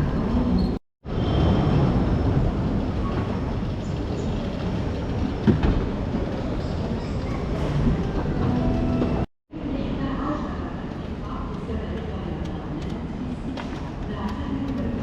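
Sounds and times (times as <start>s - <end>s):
train rumbling and rolling: 0.0s - 15.0s.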